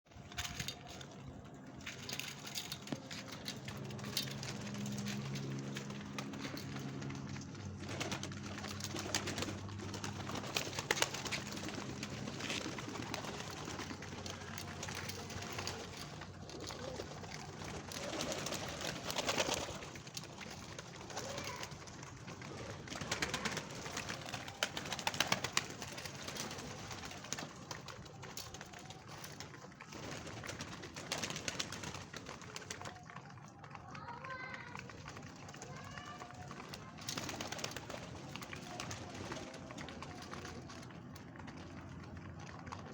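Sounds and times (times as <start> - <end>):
pigeons cooing: 7.8 - 21.6.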